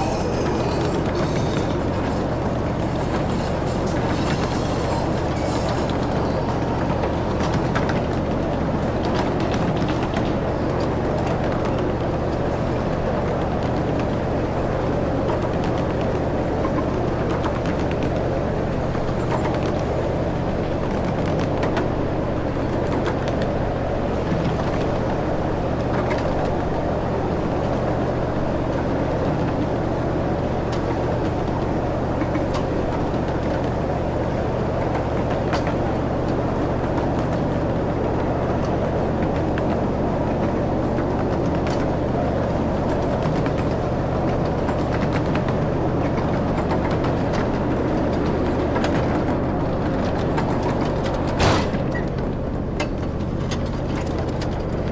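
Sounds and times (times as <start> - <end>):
ride-on train engine hum: 0.0 - 54.9
train rolling noise: 0.0 - 54.9.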